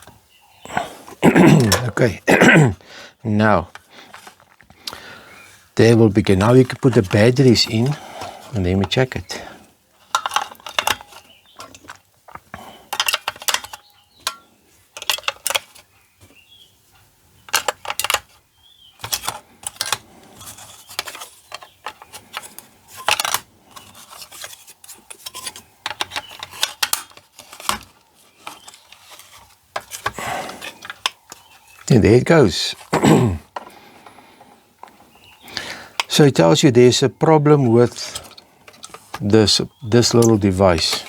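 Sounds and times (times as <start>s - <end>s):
small metallic clatters: 6.1s - 16.4s, 17.5s - 18.4s, 19.0s - 31.9s, 37.4s - 41.0s
batteries clicking into compartment: 10.0s - 14.4s, 15.0s - 15.8s, 17.5s - 18.4s, 19.0s - 31.9s, 37.7s - 41.0s.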